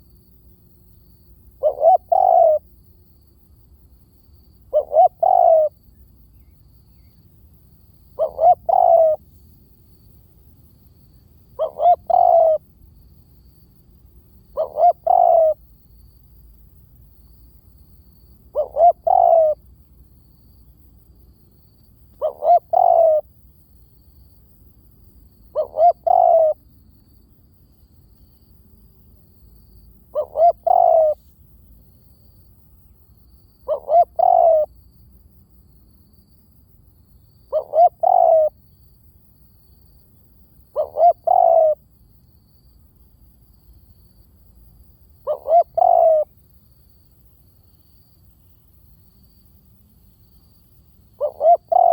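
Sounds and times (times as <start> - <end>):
dove cooing: 1.6 - 2.6, 4.7 - 5.8, 8.1 - 9.2, 11.6 - 12.7, 14.5 - 15.6, 18.5 - 19.6, 22.2 - 23.3, 25.5 - 26.6, 30.1 - 31.2, 33.6 - 34.7, 37.5 - 38.6, 40.7 - 41.8, 45.2 - 46.3, 51.2 - 51.9.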